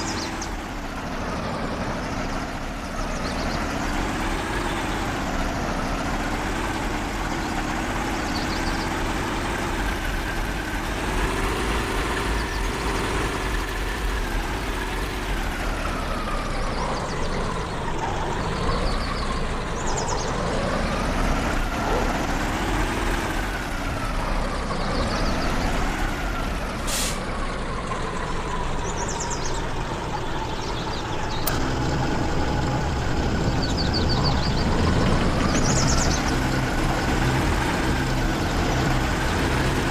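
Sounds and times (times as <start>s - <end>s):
off-road vehicle engine revving: 0.0s - 39.9s.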